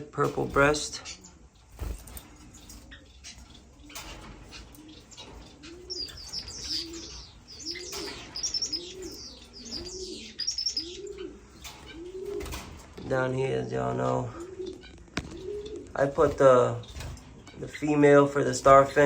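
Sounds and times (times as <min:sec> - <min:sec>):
finches chirping: 0:00.0 - 0:19.0
low even cooing: 0:02.7 - 0:19.0.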